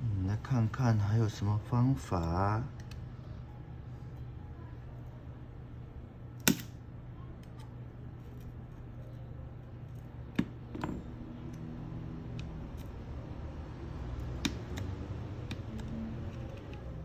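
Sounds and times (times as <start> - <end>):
steady low hum: 0.0 - 17.0
small tools clicking on a phone: 14.1 - 17.0.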